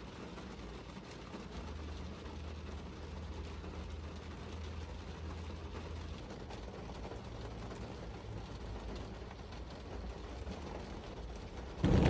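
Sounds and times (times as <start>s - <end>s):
rain on car roof and windows: 0.0s - 12.0s
low steady hum: 11.8s - 12.0s.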